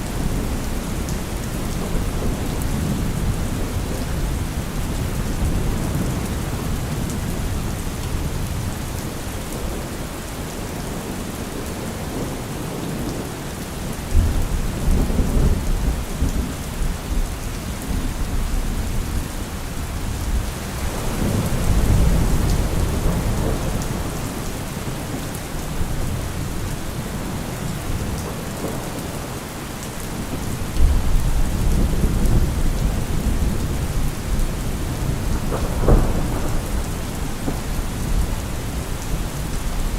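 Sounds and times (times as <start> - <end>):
heavy rain falling: 0.0 - 39.9
thunder rolling: 30.2 - 39.5.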